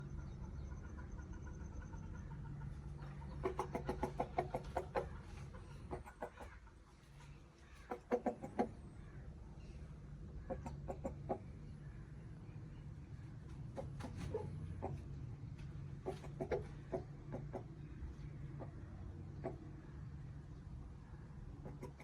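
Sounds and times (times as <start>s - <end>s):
steady low hum: 0.0s - 21.8s
chicken clucking: 0.1s - 9.0s, 10.3s - 11.8s, 13.4s - 20.0s, 21.6s - 22.0s.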